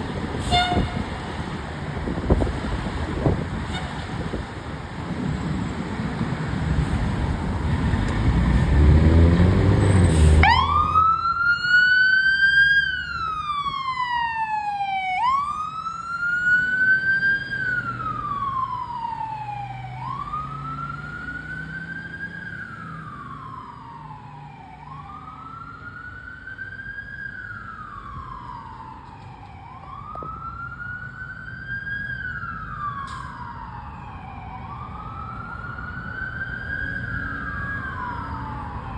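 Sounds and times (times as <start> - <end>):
fire engine rumbling: 0.0 - 38.9
siren wailing: 10.0 - 38.9.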